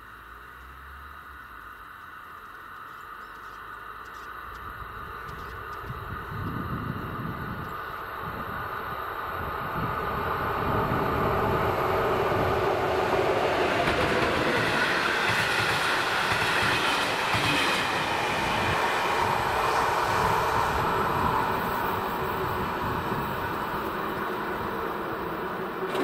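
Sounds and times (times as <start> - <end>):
passenger train passing: 5.8 - 26.0.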